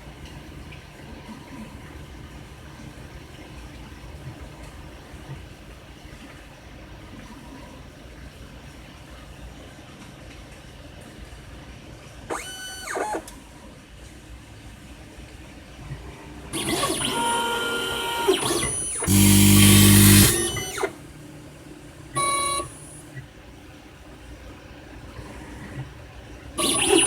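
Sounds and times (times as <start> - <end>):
robotic arm motors whining: 16.5 - 21.0, 22.2 - 22.9, 26.6 - 27.0
loud low buzz: 19.0 - 20.9.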